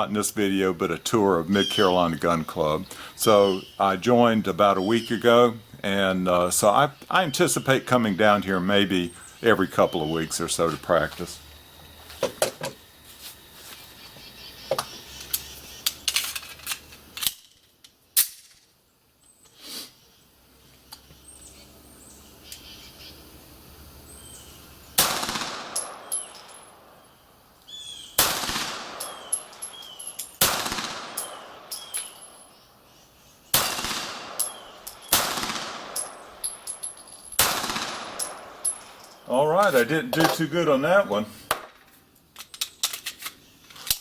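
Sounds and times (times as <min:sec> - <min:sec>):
pistol shots echoing: 0:25.0 - 0:26.9, 0:28.2 - 0:29.8, 0:30.4 - 0:32.3, 0:33.5 - 0:39.0.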